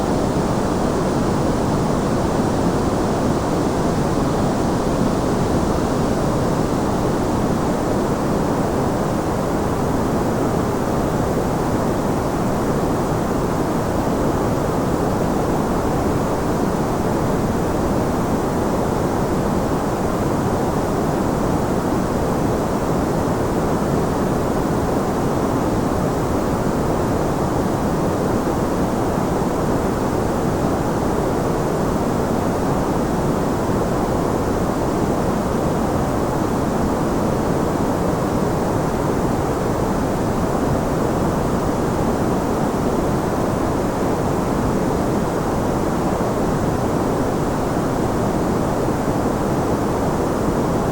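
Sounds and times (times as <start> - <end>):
steady muffled white noise: 0.0 - 50.9.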